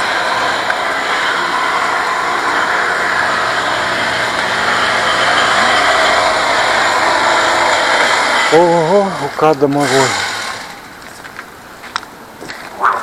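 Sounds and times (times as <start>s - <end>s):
vehicle engine running: 0.0s - 11.7s
street noise: 0.0s - 13.0s.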